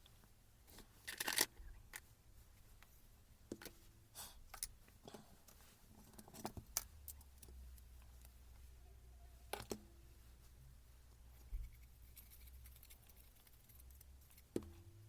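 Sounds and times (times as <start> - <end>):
small parts clicking and knocking: 1.0 - 2.1, 4.5 - 8.4.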